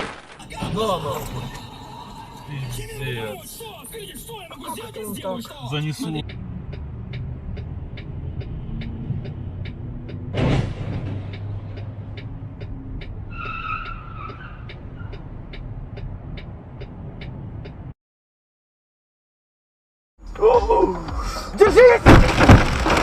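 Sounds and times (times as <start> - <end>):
car road and engine noise: 0.5 - 18.0
steady ticking: 2.7 - 10.3, 10.9 - 13.6, 14.3 - 17.9
tyre squealing: 13.3 - 15.2.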